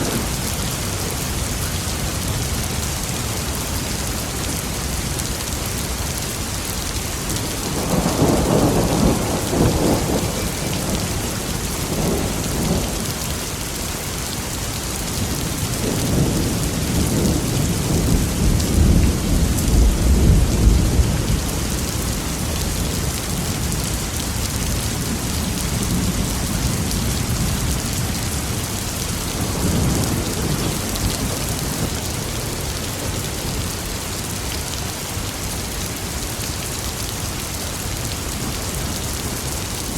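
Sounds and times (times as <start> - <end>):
heavy rain: 0.0 - 39.9
rolling thunder: 7.4 - 13.2, 15.2 - 23.5.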